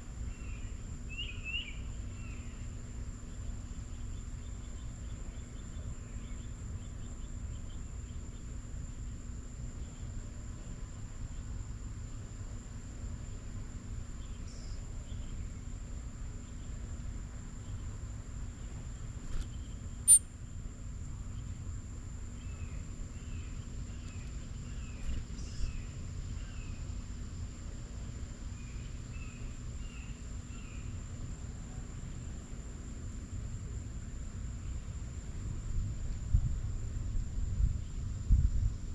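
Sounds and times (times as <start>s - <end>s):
low outdoor rumble: 0.0s - 38.9s
small birds chirping: 0.2s - 11.6s, 14.0s - 20.2s, 22.3s - 27.1s, 28.4s - 31.3s.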